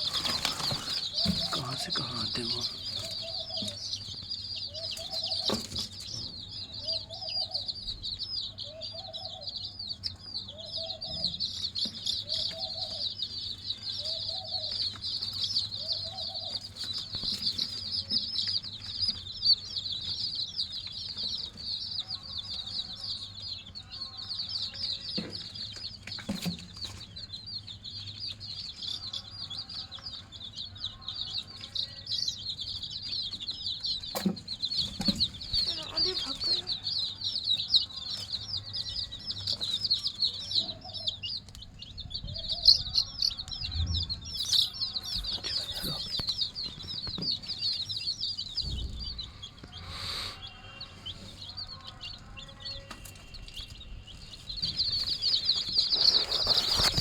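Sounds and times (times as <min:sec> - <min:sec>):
hen clucking: 0:00.0 - 0:06.0, 0:34.0 - 0:53.4, 0:54.4 - 0:57.0
chicks peeping: 0:00.0 - 0:57.0.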